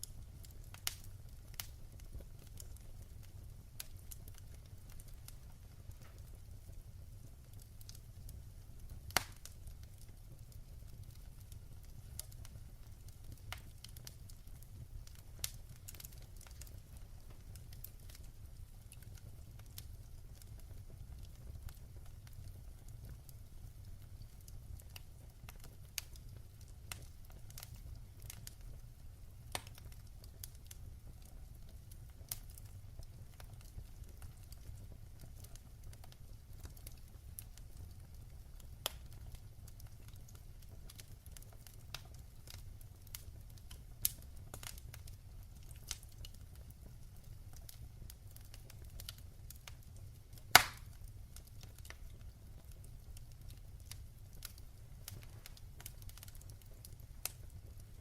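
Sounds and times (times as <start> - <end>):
fire crackling and popping: 0.0 - 58.0
fire low rumble: 0.0 - 58.0.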